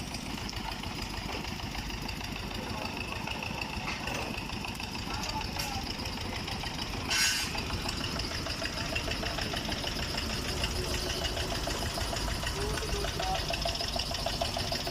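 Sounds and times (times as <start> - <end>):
engine idling: 0.0 - 14.9
brief hiss: 7.1 - 7.5.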